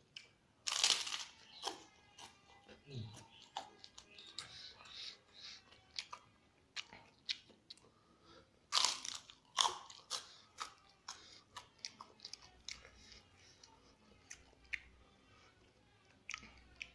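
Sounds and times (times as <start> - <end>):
crunchy bites: 0.2 - 2.3, 8.7 - 11.2
wet chewing: 3.1 - 8.0, 8.7 - 16.9.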